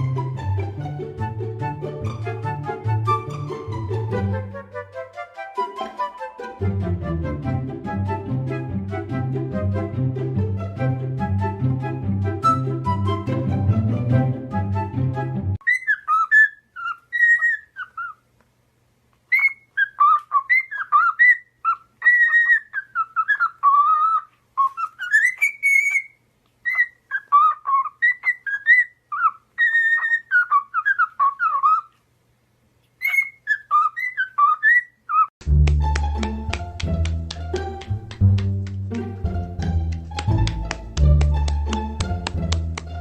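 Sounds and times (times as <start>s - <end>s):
parrot whistling a tune: 12.4s - 13.3s, 15.6s - 18.2s, 19.3s - 31.9s, 33.0s - 35.3s.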